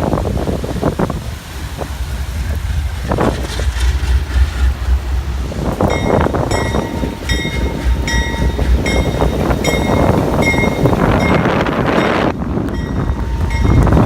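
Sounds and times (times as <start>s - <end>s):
freight train rumbling: 0.0s - 14.0s
wind buffeting microphone: 0.0s - 14.0s
bell dinging: 5.9s - 14.0s.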